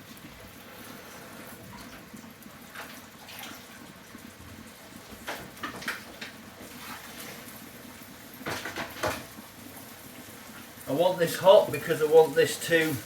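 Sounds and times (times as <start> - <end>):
dishes clinking and clattering: 8.4 - 9.3.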